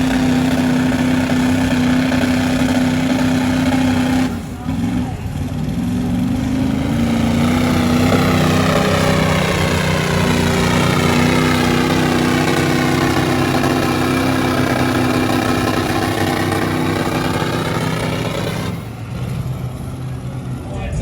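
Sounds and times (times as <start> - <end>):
truck engines at high revs: 0.0 - 21.0.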